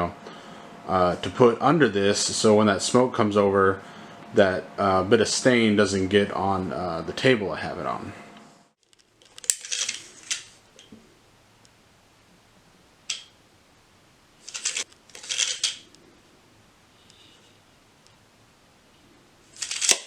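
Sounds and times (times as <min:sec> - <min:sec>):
small hard objects clicking and rattling: 0:08.8 - 0:10.9, 0:14.4 - 0:16.0, 0:19.5 - 0:20.0.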